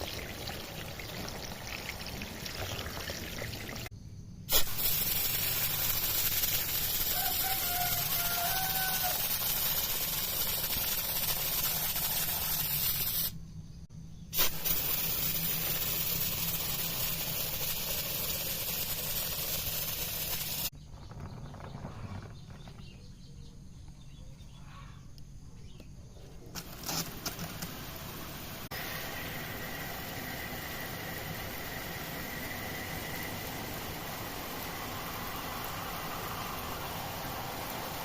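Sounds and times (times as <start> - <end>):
water spray hissing: 4.5 - 13.4, 14.4 - 20.7, 26.6 - 38.0.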